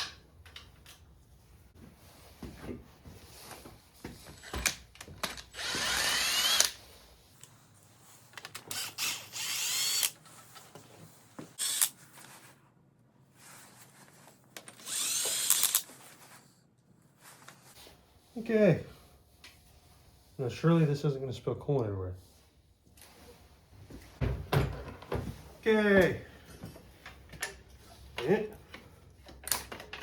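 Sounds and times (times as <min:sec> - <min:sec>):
power drill whining: 0:05.5 - 0:06.8, 0:08.6 - 0:10.2, 0:11.6 - 0:11.9, 0:14.8 - 0:15.8.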